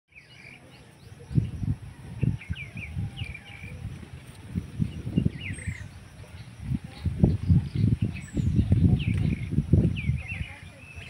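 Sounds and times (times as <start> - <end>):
birds chirping: 0.1 - 11.0.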